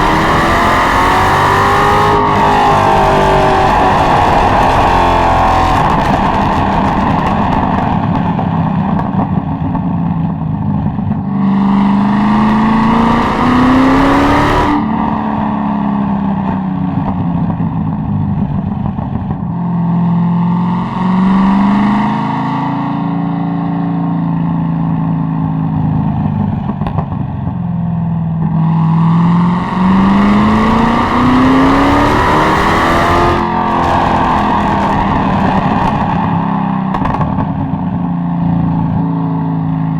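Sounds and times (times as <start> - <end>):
car exhaust revving: 0.0 - 39.9.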